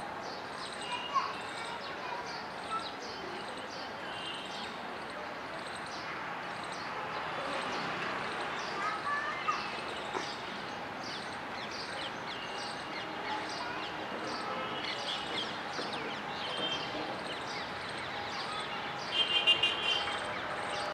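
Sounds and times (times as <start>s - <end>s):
birds chirping: 5.7s - 20.9s.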